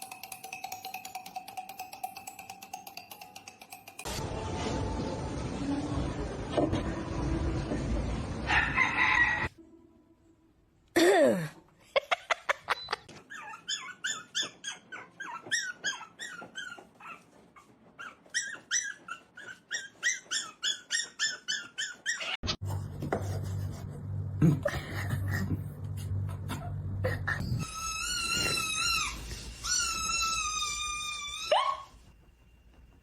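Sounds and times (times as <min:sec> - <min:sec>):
dog high squeaky whines: 0:13.2 - 0:22.4, 0:27.4 - 0:32.0
steady low hum: 0:22.6 - 0:27.6
dog falling cry: 0:27.6 - 0:31.9.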